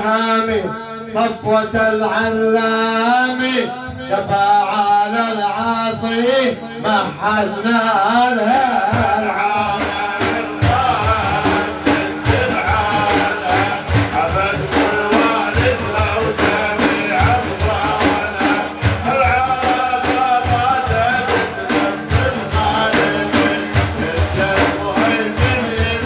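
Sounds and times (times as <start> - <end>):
wavering vocal melody: 6.8 - 26.0
frame drums beating: 8.0 - 26.0.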